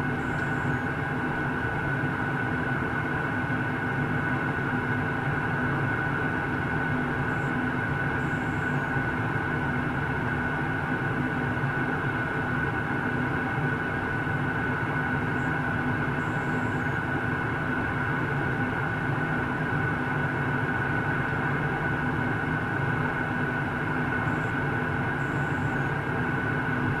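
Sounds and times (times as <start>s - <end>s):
high whine: 0.0s - 1.5s
airliner cabin engine rush: 0.0s - 27.0s.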